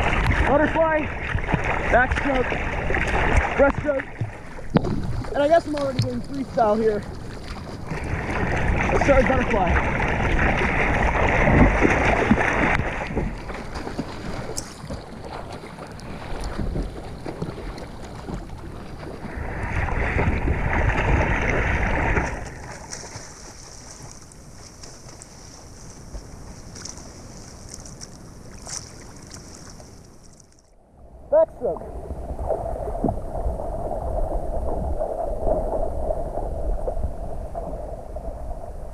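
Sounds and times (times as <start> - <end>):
swimmer splashing water: 0.0 - 30.5.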